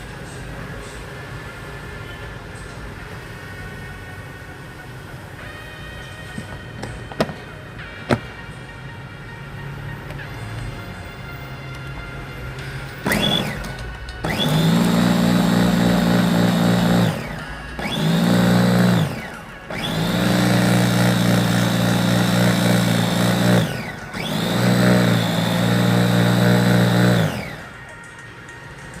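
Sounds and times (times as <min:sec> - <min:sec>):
blender motor whining: 0:06.4 - 0:07.5, 0:13.0 - 0:28.0.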